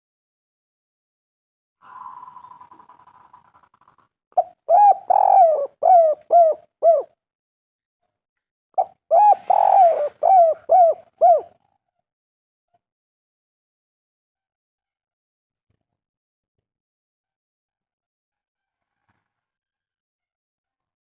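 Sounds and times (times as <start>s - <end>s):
dove cooing: 4.4s - 7.1s, 8.8s - 11.6s.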